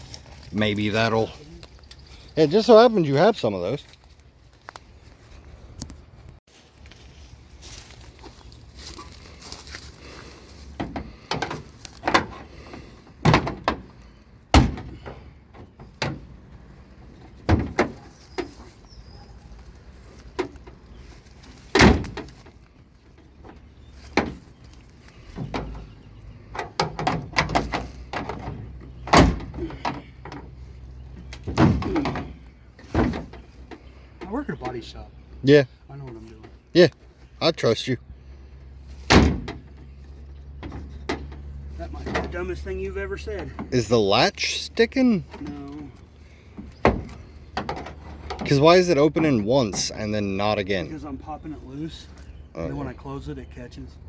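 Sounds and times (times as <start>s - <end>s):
car door metal clanking: 13.2s - 16.4s, 21.7s - 22.4s, 25.4s - 30.5s, 31.3s - 33.5s, 39.0s - 39.9s.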